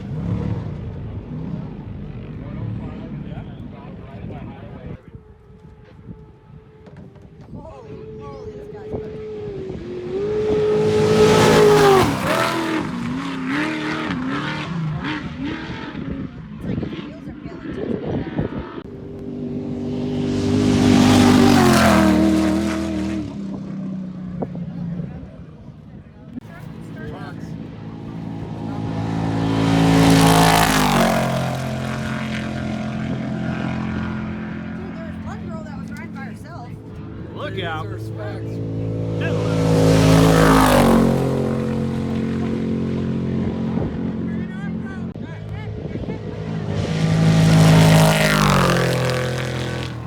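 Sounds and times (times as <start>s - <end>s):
truck engine racing past: 7.8s - 18.0s, 18.6s - 24.4s, 26.4s - 50.0s.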